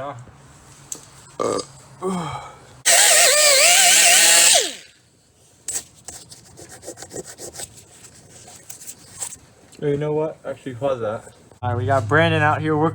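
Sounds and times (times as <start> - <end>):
power tool motor whine: 2.9 - 4.9.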